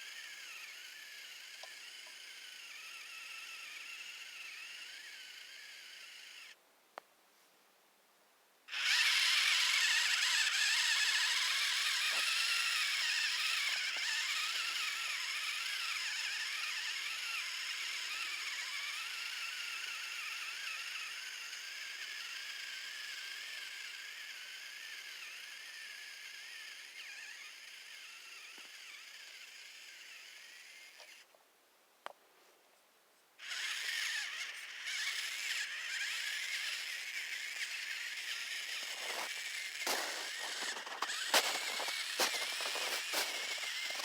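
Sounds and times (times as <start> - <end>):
electric motor and gears whining: 0.0 - 6.6, 8.7 - 31.3, 33.4 - 44.0.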